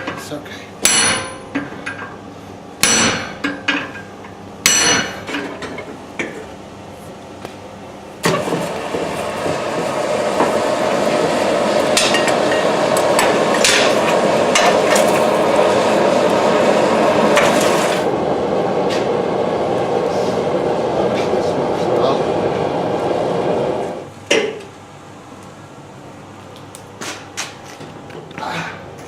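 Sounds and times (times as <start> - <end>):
hammer striking steel: 0.8 - 2.1, 2.8 - 4.0, 4.6 - 5.5, 8.2 - 16.5
steady rushing noise: 8.4 - 24.1.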